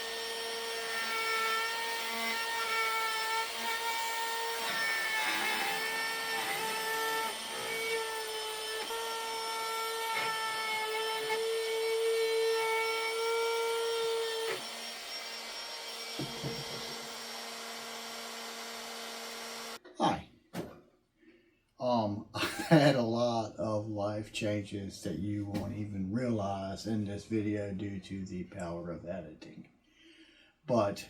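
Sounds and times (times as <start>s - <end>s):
power tool motor running: 0.0s - 19.8s
rubbing and cutting noise: 0.0s - 19.8s
knocks: 16.1s - 17.0s, 25.5s - 25.8s.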